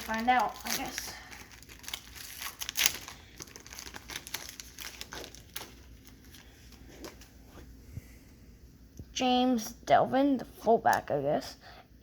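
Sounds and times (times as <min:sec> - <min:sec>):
card pack wrapper tearing: 0:00.0 - 0:06.4
cards rustling: 0:00.0 - 0:07.5.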